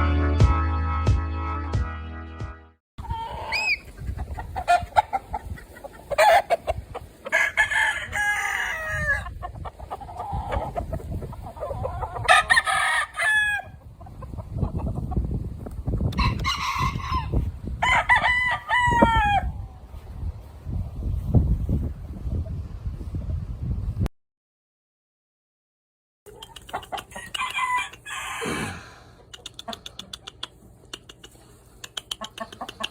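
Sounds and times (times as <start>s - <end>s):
roosters crowing: 3.0s - 13.9s, 16.2s - 19.8s, 26.8s - 29.2s.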